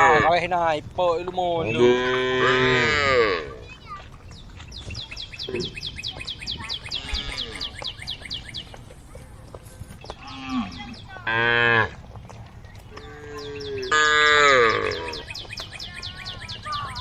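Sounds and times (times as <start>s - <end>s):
cows mooing: 0.0s - 0.4s, 1.6s - 3.6s, 7.0s - 7.8s, 10.2s - 12.0s, 12.9s - 15.4s.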